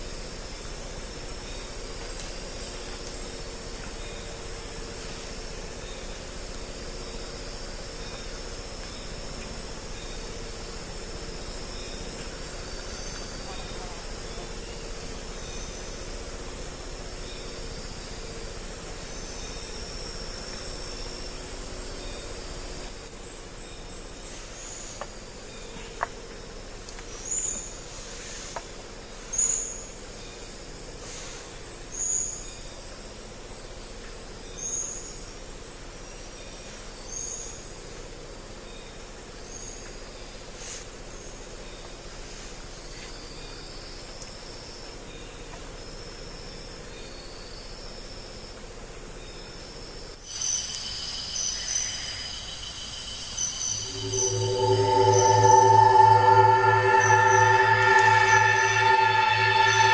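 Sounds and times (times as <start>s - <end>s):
steady high tones: 53.6s - 59.9s.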